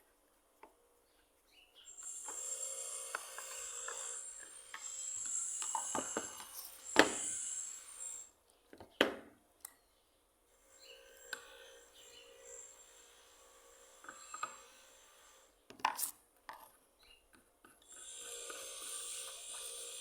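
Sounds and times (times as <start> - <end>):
rasping scraping on wood: 1.9 - 8.3.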